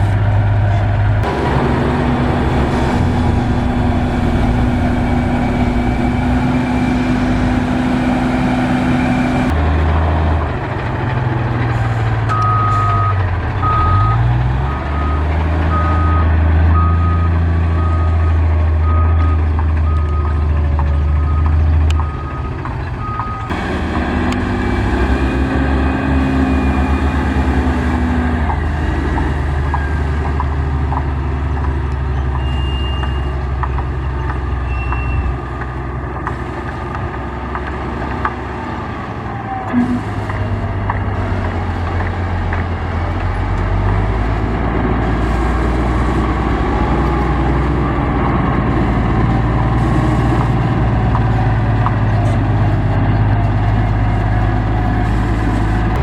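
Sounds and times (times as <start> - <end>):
heavy machinery engines under load: 0.0 - 56.0
reversing alarm beeping: 1.2 - 9.6, 12.3 - 20.4, 21.1 - 27.9, 32.3 - 33.5.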